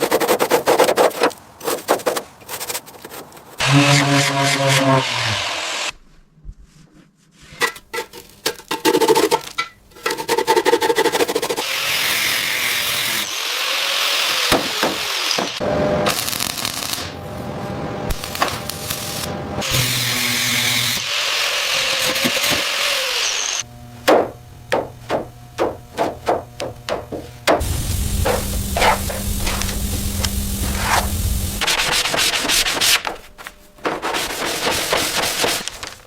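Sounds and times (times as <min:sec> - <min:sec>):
power tools hissing harshly: 0:03.6 - 0:05.9, 0:18.8 - 0:23.7, 0:27.6 - 0:31.6
power tools whining: 0:03.6 - 0:05.9, 0:11.6 - 0:16.3, 0:18.1 - 0:31.6
sharp knocks: 0:24.0 - 0:27.7.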